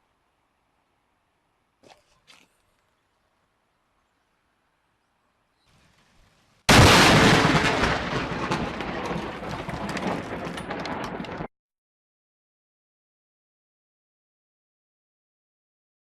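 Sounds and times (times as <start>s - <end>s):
thunderclap crack and rumble: 6.7s - 11.5s.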